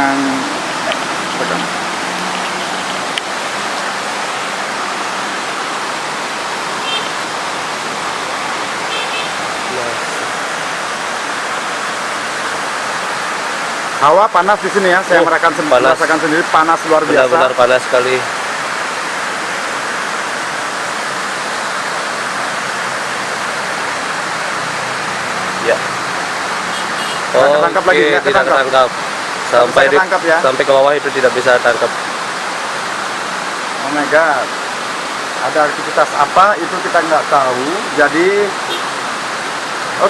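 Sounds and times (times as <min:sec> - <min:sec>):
water rushing through dam: 0:00.0 - 0:40.0.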